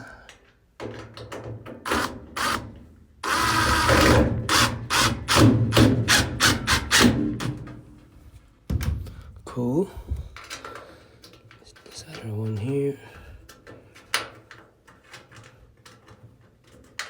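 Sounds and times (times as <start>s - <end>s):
power drill driving a screw: 1.9s - 2.6s, 3.2s - 7.2s.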